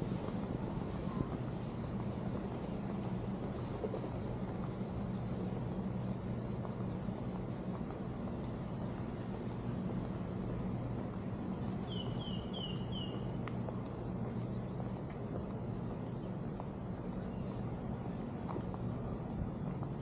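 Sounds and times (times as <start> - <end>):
bird chirps sliding downward: 11.8 - 13.3.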